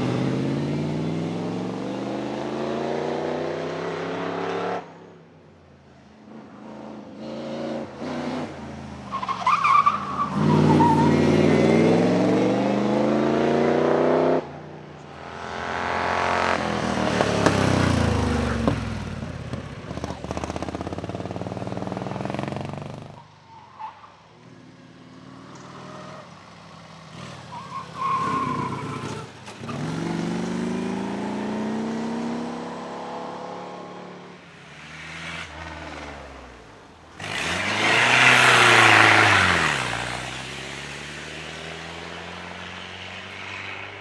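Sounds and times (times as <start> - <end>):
racing car engines revving: 0.0 - 5.0, 6.0 - 23.2, 23.8 - 44.0
tyre squeal: 9.1 - 11.6, 27.5 - 30.0
car passing by: 26.9 - 44.0.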